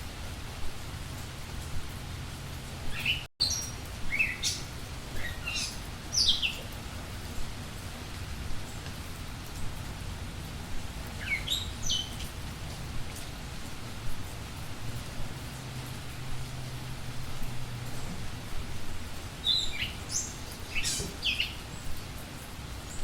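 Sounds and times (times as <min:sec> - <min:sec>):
steady hiss: 0:00.0 - 0:23.0
budgerigars chirping: 0:03.0 - 0:06.7, 0:19.4 - 0:21.6.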